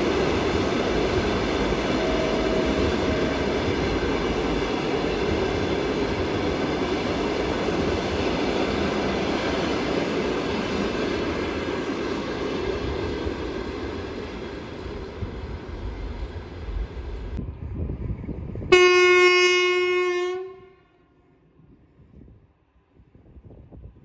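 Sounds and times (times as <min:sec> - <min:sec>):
train wheels rolling on rails: 0:00.0 - 0:18.9.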